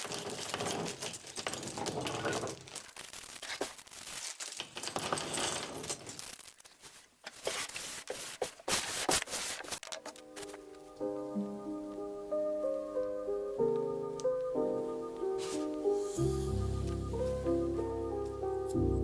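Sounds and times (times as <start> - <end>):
plastic bags crinkling and tearing: 0.0 - 10.6.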